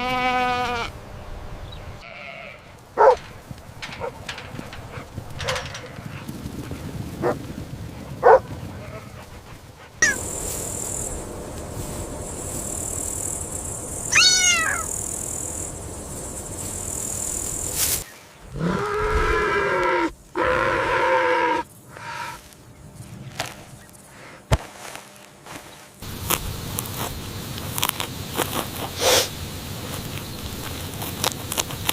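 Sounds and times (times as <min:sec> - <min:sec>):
animal calls: 0:10.0 - 0:10.3, 0:14.0 - 0:15.4
kitten meowing: 0:14.1 - 0:14.9.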